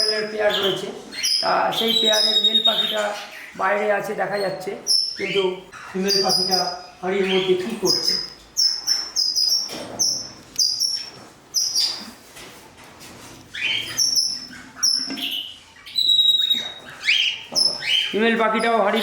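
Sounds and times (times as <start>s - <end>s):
cockatiels chirping: 0.0s - 12.3s, 13.4s - 19.0s
cockatiel whistle: 13.6s - 18.1s.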